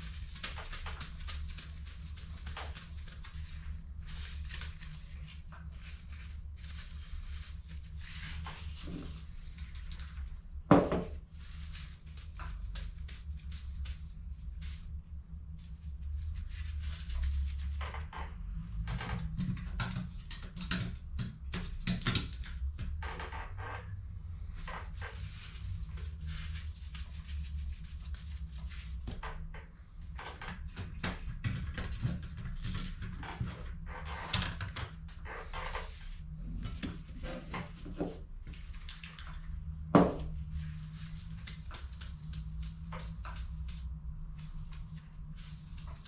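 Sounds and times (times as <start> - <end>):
steady low hum: 0.0 - 19.7, 34.9 - 46.0.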